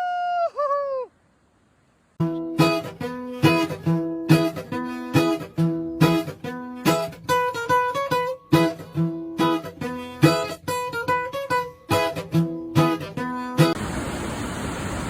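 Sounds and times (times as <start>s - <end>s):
acoustic guitar music: 2.2s - 13.8s.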